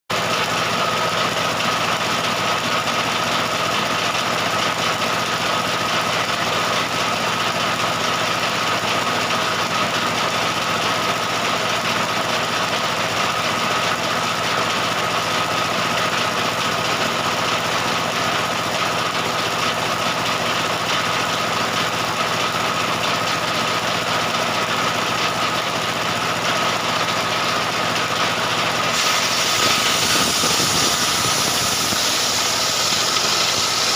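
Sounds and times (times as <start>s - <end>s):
chainsaw cutting wood: 28.9s - 33.9s.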